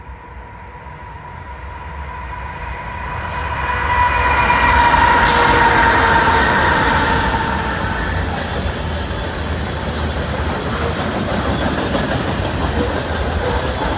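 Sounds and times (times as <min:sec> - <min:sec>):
train approaching rumble: 0:00.0 - 0:13.9
high-pitched ring: 0:01.2 - 0:08.9.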